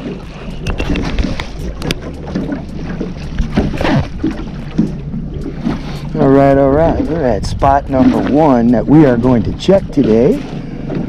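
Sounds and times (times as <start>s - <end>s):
outboard engine hum: 0.0s - 11.0s
water noise: 0.0s - 11.0s
wind: 0.0s - 11.0s.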